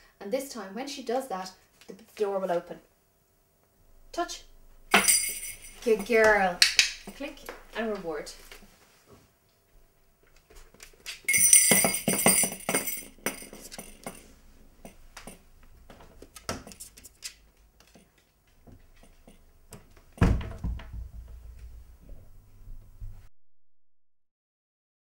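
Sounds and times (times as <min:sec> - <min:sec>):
small bells jingling on a strap: 0:04.9 - 0:07.2, 0:11.3 - 0:15.4
loud thump: 0:20.2 - 0:21.8.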